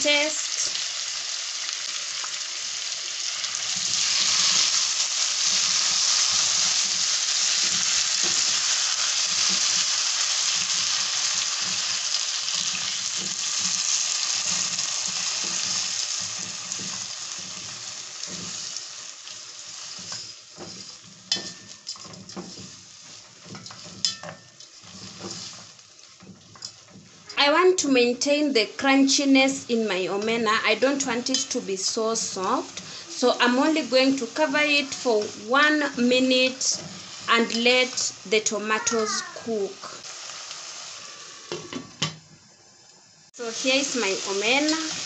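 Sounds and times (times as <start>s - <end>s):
fish sizzling in hot oil: 0.0s - 45.0s
wooden spoon scraping a pan: 3.5s - 27.5s, 29.5s - 38.2s.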